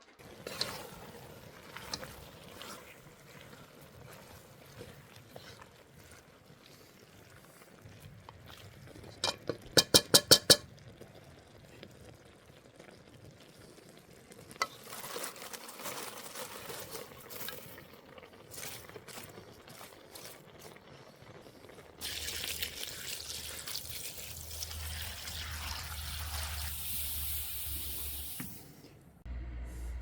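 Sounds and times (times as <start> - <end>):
food sizzling with stirring: 0.0 - 7.7
metal taps on pan: 9.2 - 10.7.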